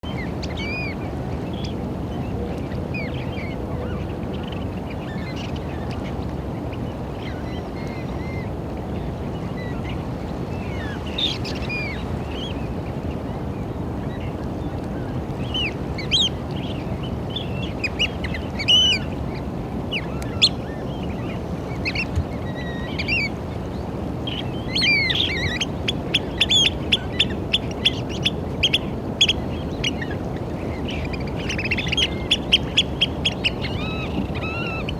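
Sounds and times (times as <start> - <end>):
low rushing background noise: 0.0 - 34.9
oystercatchers piping calls: 15.6 - 16.3, 17.5 - 19.1, 24.3 - 30.2, 30.8 - 34.9.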